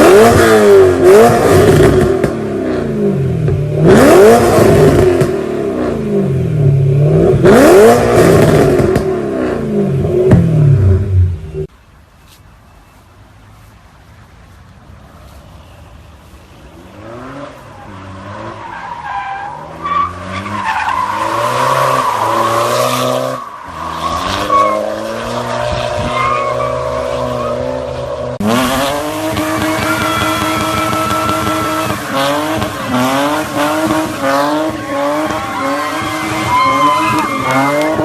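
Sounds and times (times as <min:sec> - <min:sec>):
car engine revving: 0:00.0 - 0:11.6, 0:16.9 - 0:38.0
tyres squealing: 0:29.6 - 0:38.0.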